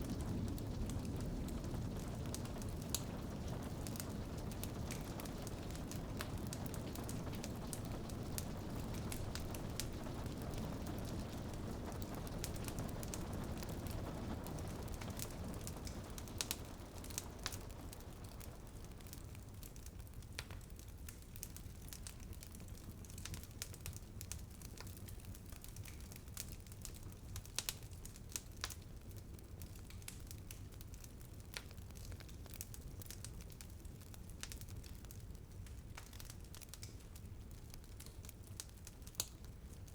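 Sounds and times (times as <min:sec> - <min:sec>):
wood fire crackling: 0:00.0 - 0:39.9
rain hissing: 0:00.1 - 0:18.2.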